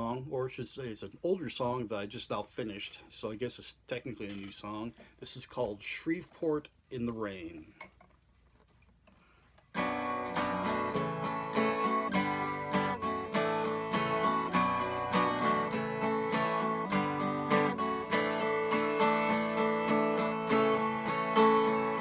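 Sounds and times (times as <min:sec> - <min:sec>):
acoustic guitar strumming: 0:09.7 - 0:22.0.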